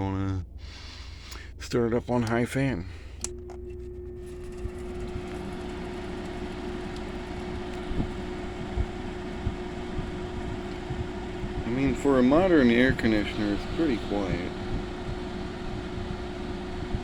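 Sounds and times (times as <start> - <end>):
air conditioner fan humming: 0.0 - 17.0.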